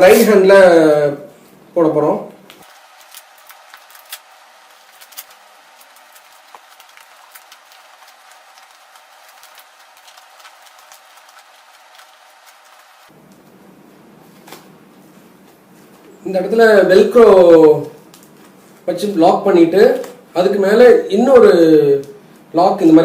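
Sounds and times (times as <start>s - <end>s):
leather glove rustling: 2.6s - 13.1s
steady hiss: 2.6s - 20.7s.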